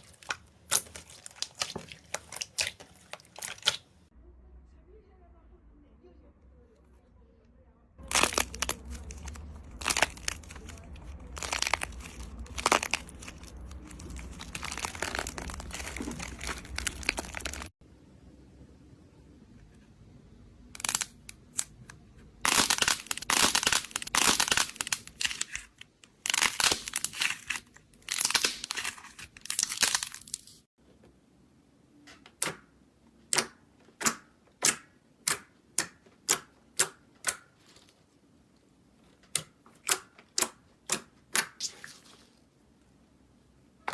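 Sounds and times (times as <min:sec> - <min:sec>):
crunchy material being crushed: 0:00.0 - 0:03.8, 0:08.0 - 0:17.7, 0:22.4 - 0:30.6.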